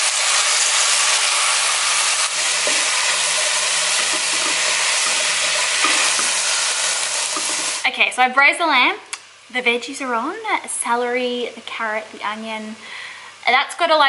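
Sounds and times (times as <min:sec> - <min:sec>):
food sizzling in a pot: 0:00.0 - 0:08.5.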